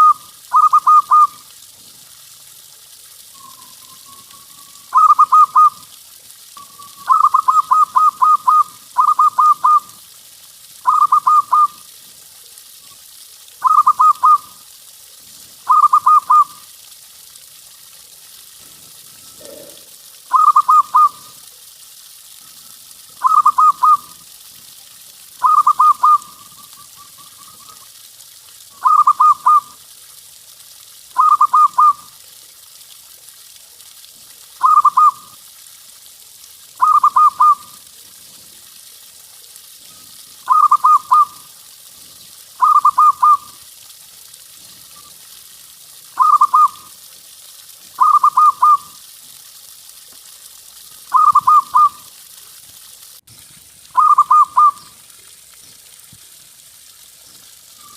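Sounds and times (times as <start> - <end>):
dove cooing: 0.0 - 1.3, 4.9 - 5.8, 6.6 - 9.9, 10.8 - 11.7, 13.6 - 14.5, 15.7 - 16.6, 19.2 - 21.2, 23.2 - 24.1, 25.4 - 27.8, 28.8 - 29.6, 31.2 - 32.0, 36.8 - 37.7, 40.5 - 41.4, 42.6 - 43.4, 46.2 - 46.8, 51.1 - 52.0, 54.0 - 54.8
faint hiss: 0.0 - 57.9.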